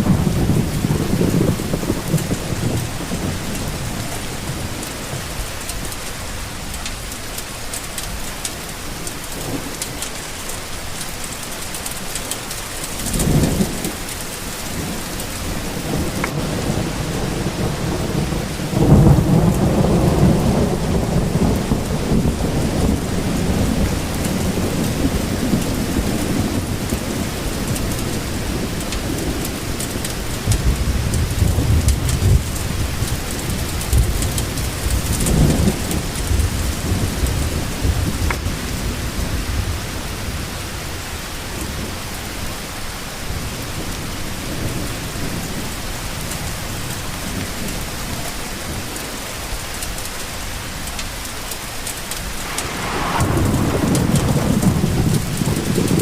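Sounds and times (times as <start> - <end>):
thunder rumbling: 0.0 - 6.0, 13.0 - 39.8, 52.0 - 56.0
steady rain falling: 0.0 - 56.0.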